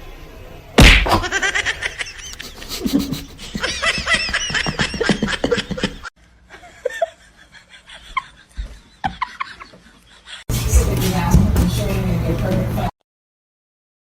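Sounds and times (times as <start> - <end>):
high-pitched laughter: 1.2 - 10.4.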